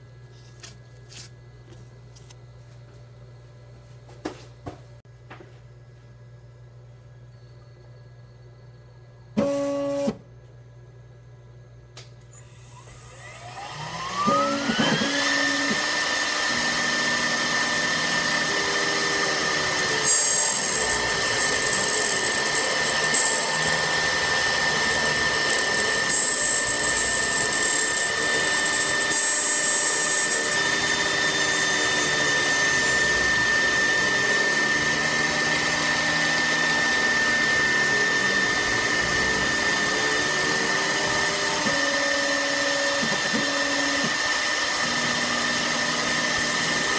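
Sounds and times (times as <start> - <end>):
router spindle whine: 12.3 - 46.9.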